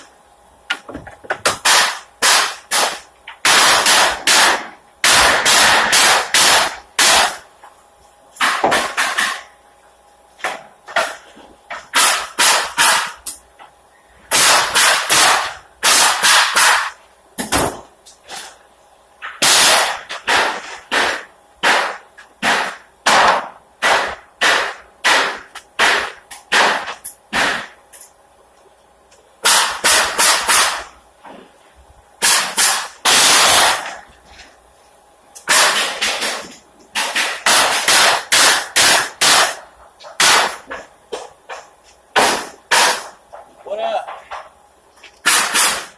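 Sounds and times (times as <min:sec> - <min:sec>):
pneumatic nail gun firing: 0:00.7 - 0:07.5, 0:08.4 - 0:09.5, 0:10.9 - 0:13.4, 0:14.3 - 0:18.6, 0:19.2 - 0:27.8, 0:29.4 - 0:31.4, 0:32.2 - 0:34.0, 0:35.4 - 0:43.2, 0:45.2 - 0:45.9.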